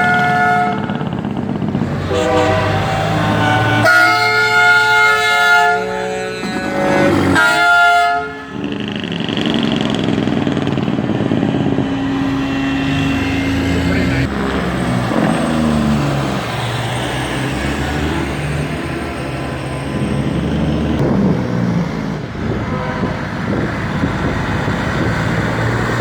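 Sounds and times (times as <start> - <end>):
truck horn multi-tone: 0.0 - 15.7, 22.4 - 24.0
truck engines running: 0.0 - 26.0.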